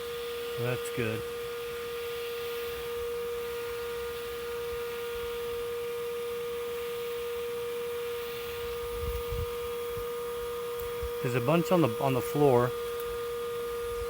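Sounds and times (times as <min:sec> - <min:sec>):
vacuum motor whine: 0:00.0 - 0:14.0.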